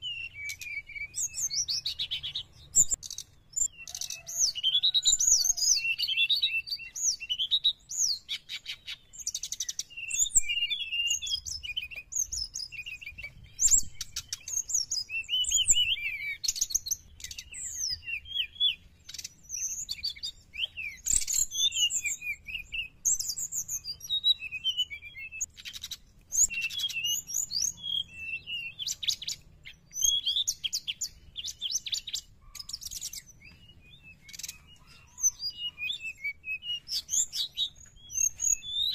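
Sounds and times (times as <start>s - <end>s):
bird singing whistles and trills: 0.0s - 38.9s.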